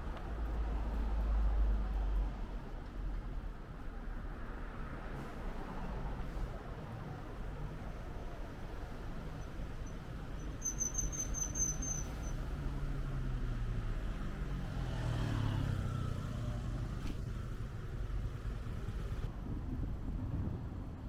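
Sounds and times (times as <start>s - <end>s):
street traffic rumble: 0.0s - 21.0s
car passing: 12.8s - 19.3s.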